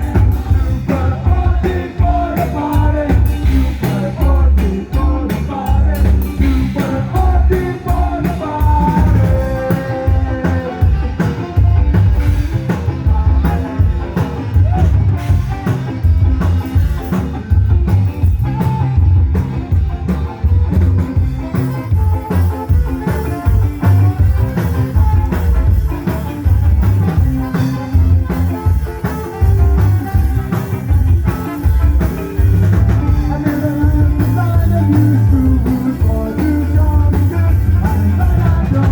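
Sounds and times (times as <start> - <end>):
person singing: 0.0 - 11.5, 33.1 - 38.9
heavy bass beat: 0.0 - 38.9
live rock band playing: 0.0 - 38.9.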